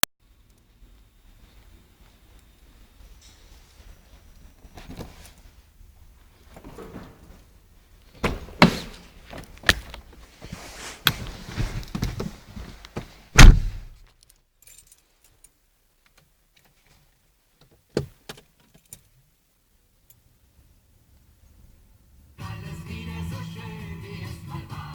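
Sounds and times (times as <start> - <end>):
loud thump: 13.4 - 14.0
keys jangling: 14.6 - 15.5.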